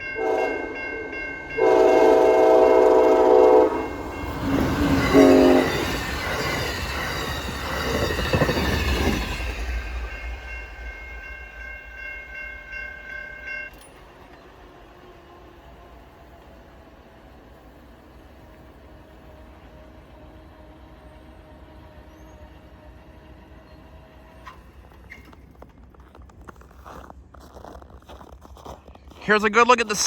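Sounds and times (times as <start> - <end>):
train horn blasts: 0.0 - 6.1
train rushing past: 0.0 - 25.1.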